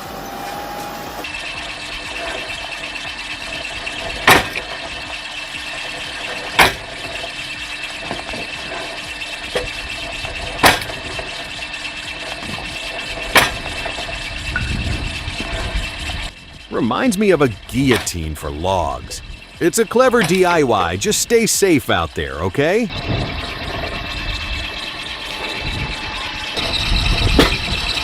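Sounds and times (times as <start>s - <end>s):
motor running steadily: 0.0s - 16.8s, 19.0s - 19.6s, 22.8s - 28.0s
guillotine chopping wood: 6.6s - 6.8s.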